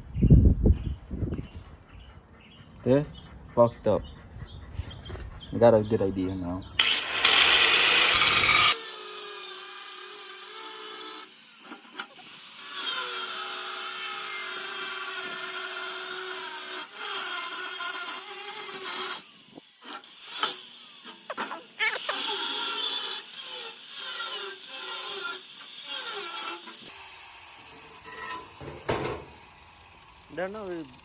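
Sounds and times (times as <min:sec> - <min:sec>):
power tool cutting metal pipe: 0:06.8 - 0:31.0.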